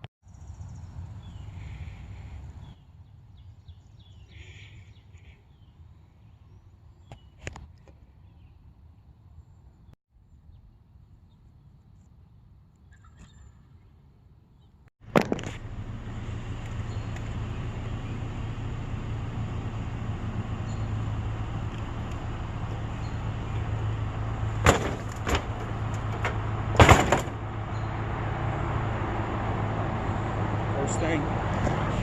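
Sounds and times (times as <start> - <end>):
vehicle hum and road rumble: 15.0 - 32.0
sharp knocks or clunks: 21.5 - 27.6.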